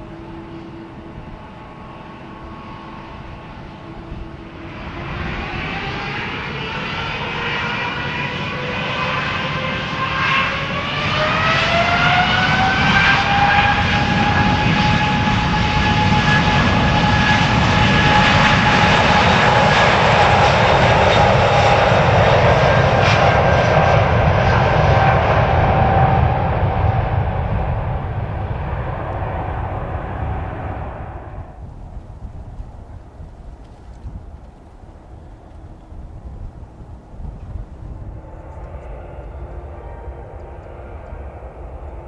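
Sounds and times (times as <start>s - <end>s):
jet engines spooling up: 0.0s - 31.8s, 37.1s - 42.0s.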